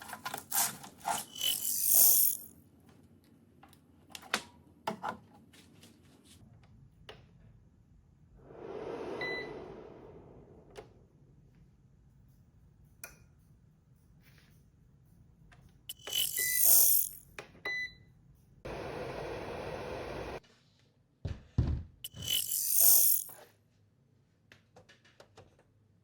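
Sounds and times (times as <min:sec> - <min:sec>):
short beep-like tone: 0:09.2 - 0:09.6.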